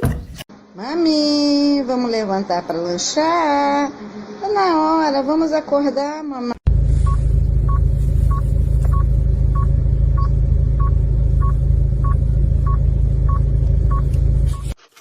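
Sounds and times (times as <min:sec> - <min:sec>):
loud low rumble: 0:06.7 - 0:14.7.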